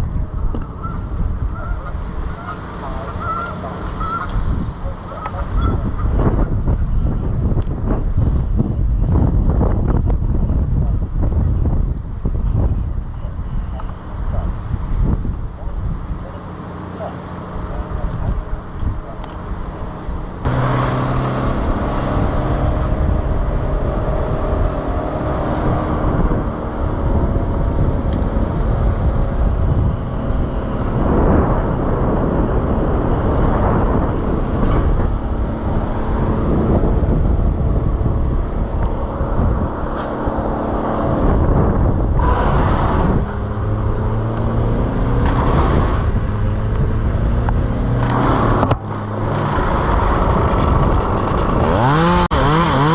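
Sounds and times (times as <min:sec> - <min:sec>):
engine running: 0:00.0 - 0:52.9
rough noise: 0:12.3 - 0:52.9.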